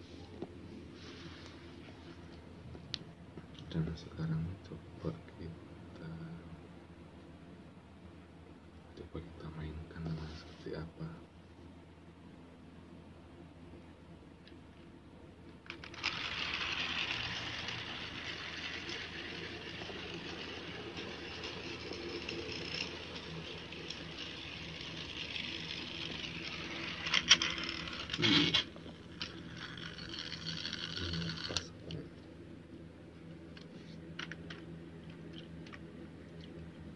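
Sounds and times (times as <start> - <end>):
toy train motor whir and rattle: 15.6 - 31.7.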